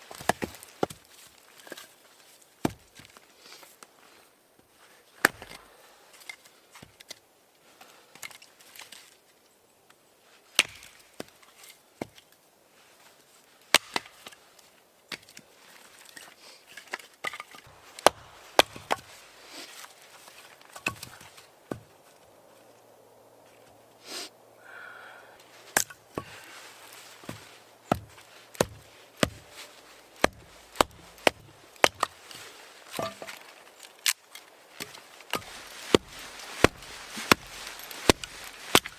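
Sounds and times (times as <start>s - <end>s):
wood chopping strikes: 5.2s - 5.7s, 17.7s - 19.5s, 25.7s - 33.4s, 34.8s - 38.9s.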